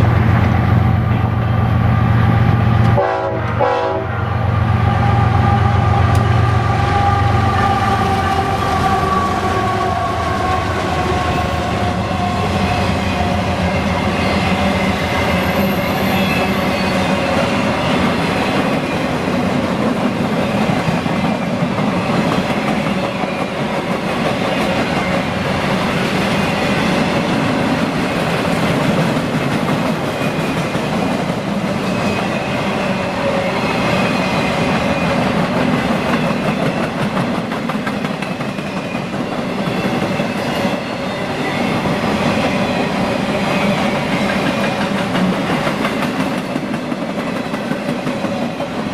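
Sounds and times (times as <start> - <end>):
train wheels roaring on rails: 0.0 - 48.9
locomotive horn: 2.9 - 4.4, 5.0 - 12.6
clickety-clack of wheels: 28.2 - 32.2, 34.6 - 40.8, 44.0 - 48.9.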